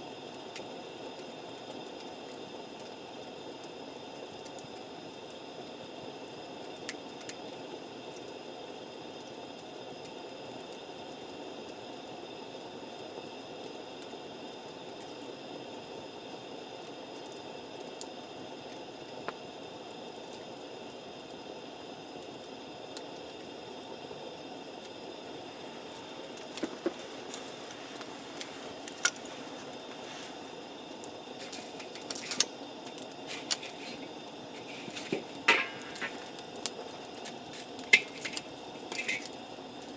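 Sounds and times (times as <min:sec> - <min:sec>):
campfire hissing: 0:00.0 - 0:39.9
wood crackling and popping: 0:06.6 - 0:08.5, 0:24.6 - 0:39.9.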